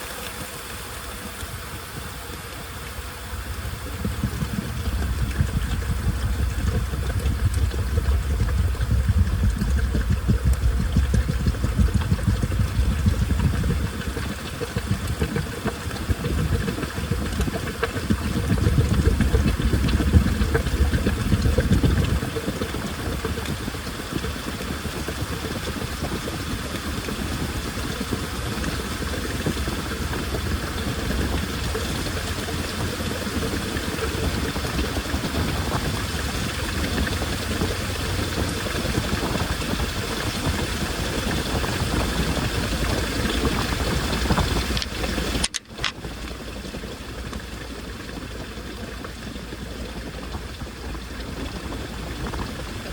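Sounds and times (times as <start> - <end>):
washing machine running: 0.0 - 52.9
water washing in drum: 0.0 - 52.9.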